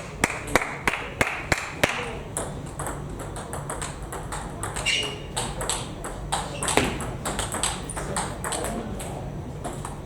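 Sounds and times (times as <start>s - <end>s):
table tennis balls clicking: 2.3s - 10.0s.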